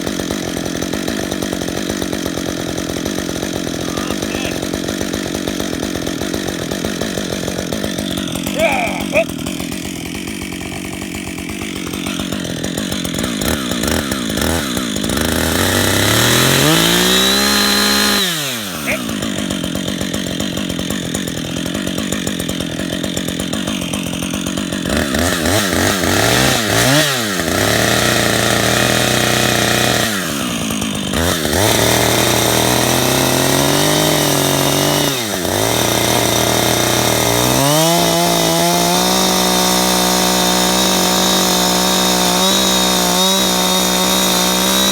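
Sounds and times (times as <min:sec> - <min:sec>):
chainsaw cutting wood: 0:00.0 - 0:44.9.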